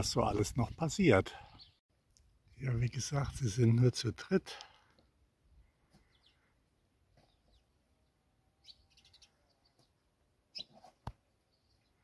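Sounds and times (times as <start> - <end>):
faint bird chirps: 6.0 - 12.0.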